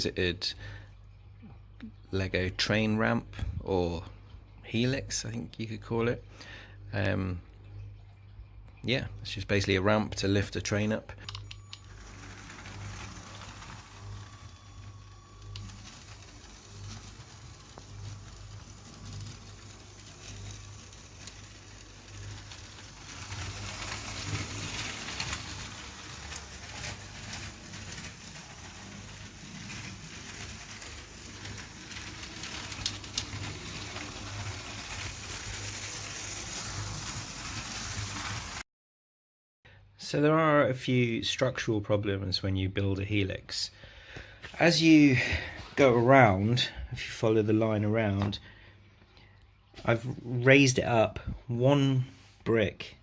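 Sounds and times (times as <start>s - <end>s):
toy train motor whirring: 11.4s - 38.6s
wheels rattling on plastic track: 11.5s - 38.6s.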